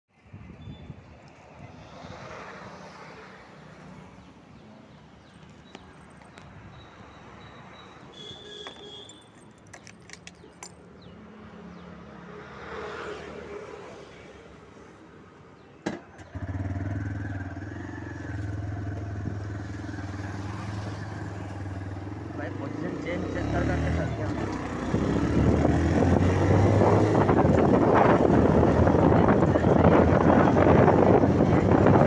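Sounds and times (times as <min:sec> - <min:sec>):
keys jangling: 0:08.6 - 0:10.9
motorcycle engine starting and idling: 0:15.9 - 0:20.4.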